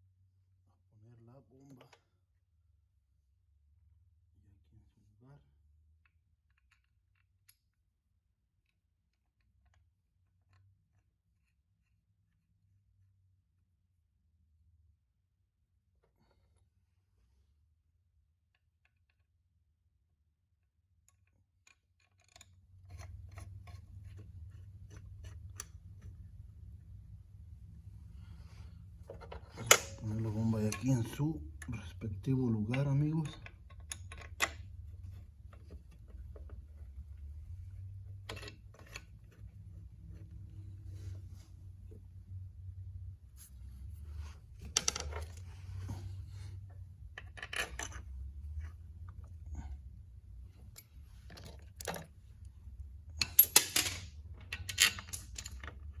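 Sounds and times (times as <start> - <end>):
low steady hum: 22.6 - 56.0.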